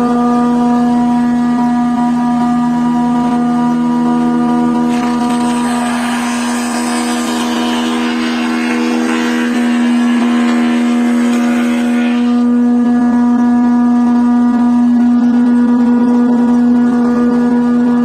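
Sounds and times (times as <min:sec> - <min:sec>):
power tool motor humming: 0:04.8 - 0:12.9
wood being cut hissing: 0:04.9 - 0:12.6.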